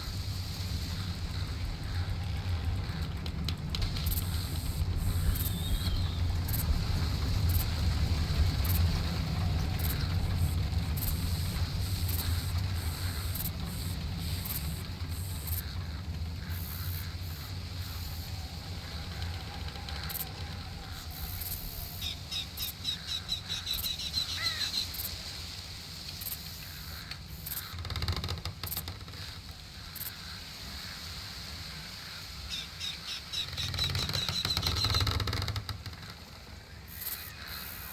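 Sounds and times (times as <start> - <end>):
steady low rumble: 0.0 - 24.6
rapid ticking trills: 0.0 - 25.1
faint bird chirp: 4.0 - 6.7, 32.4 - 35.2.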